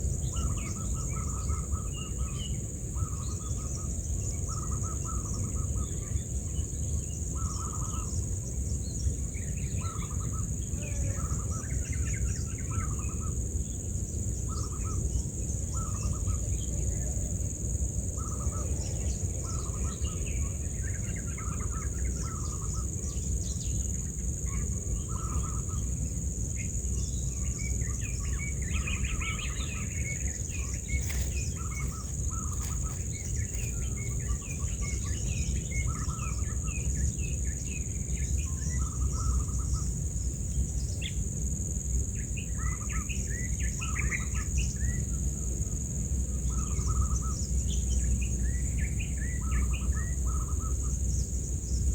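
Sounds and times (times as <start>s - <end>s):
birds chirping: 24.5s - 40.3s
high-pitched insect drone: 27.6s - 36.6s.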